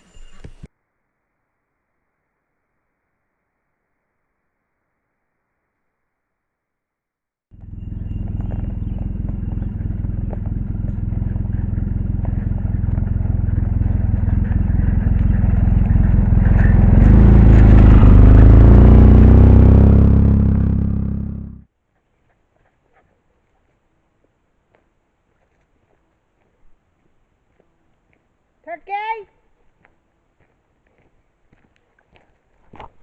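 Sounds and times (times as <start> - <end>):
off-road vehicle engine driving: 7.5 - 21.6.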